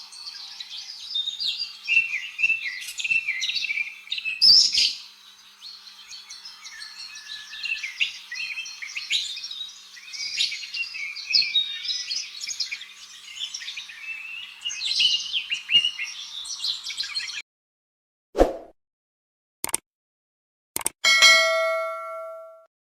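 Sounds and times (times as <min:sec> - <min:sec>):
small birds chirping: 0:00.0 - 0:17.4.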